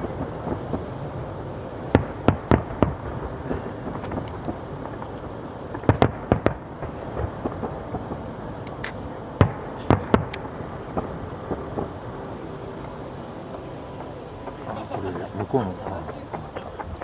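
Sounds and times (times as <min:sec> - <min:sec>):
faint fireworks pops: 0:00.0 - 0:12.2
fireworks bursting: 0:00.0 - 0:17.0.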